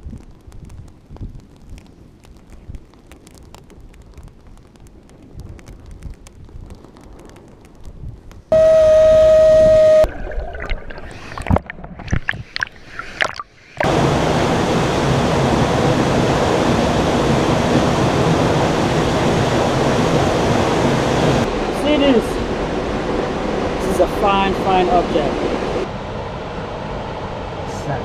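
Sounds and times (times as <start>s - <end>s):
steady pitched tone: 8.5s - 11.0s.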